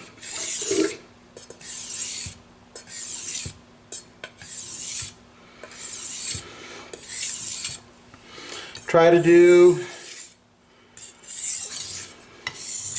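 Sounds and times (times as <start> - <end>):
knife scraping on whetstone: 0.2 - 7.8, 9.9 - 10.4, 11.0 - 12.9.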